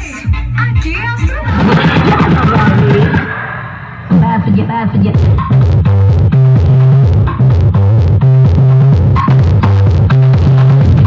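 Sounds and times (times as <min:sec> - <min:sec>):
loud music with heavy bass: 0:01.4 - 0:11.0.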